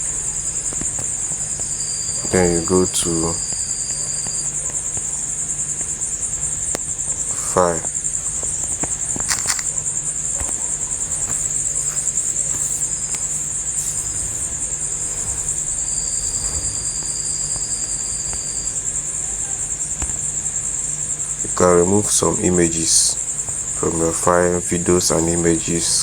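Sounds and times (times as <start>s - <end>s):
insects trilling: 0.0s - 26.0s
faint clicks: 8.4s - 13.3s.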